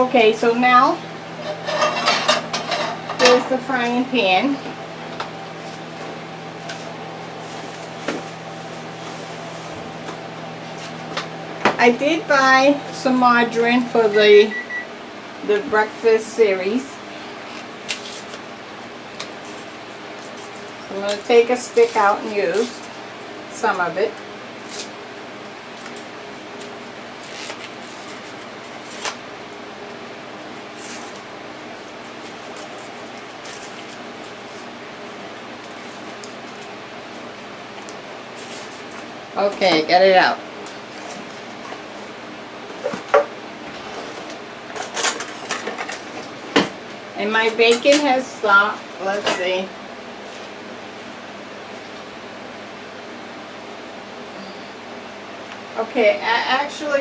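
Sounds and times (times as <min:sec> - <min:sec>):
microwave oven humming: 0:00.0 - 0:57.0
paper wrapper rustling: 0:07.4 - 0:10.0, 0:25.7 - 0:29.2, 0:30.5 - 0:39.2.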